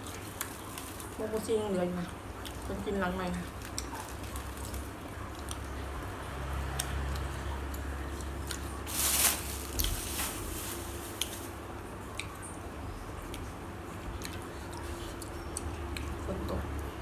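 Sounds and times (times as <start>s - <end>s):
rustle: 8.8s - 11.6s.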